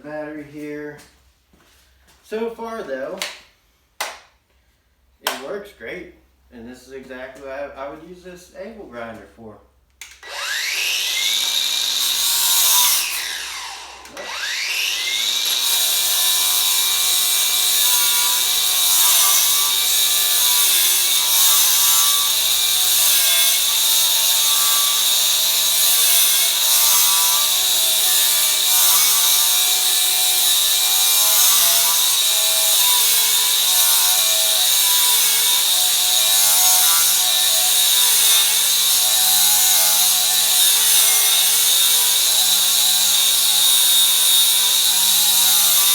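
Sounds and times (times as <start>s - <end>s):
angle grinder grinding paint: 10.2s - 45.9s.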